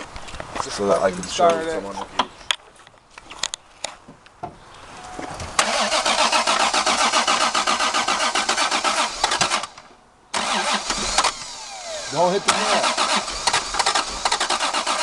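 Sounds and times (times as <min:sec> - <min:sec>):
starter motor cranking engine: 0:05.6 - 0:09.8, 0:10.4 - 0:15.0.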